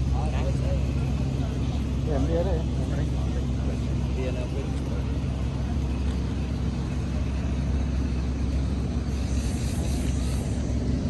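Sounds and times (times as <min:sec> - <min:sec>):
boat engine droning: 0:00.0 - 0:11.0
brief hiss: 0:09.1 - 0:10.8.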